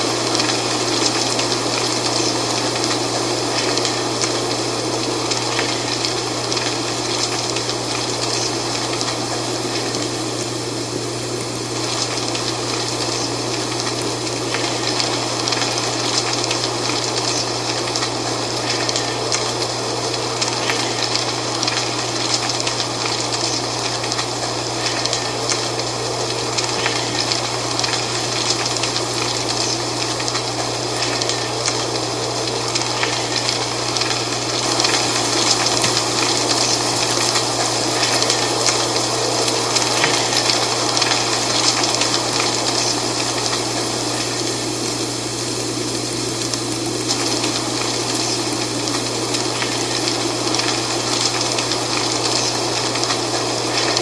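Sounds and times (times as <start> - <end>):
dry leaves rustling in wind: 0.0 - 54.0.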